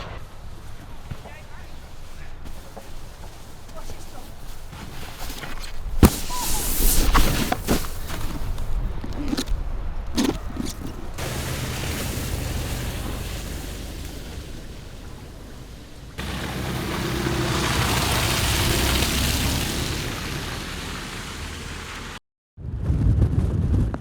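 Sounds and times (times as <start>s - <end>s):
low buffeting: 10.4s - 22.2s
rushing water: 11.0s - 22.2s.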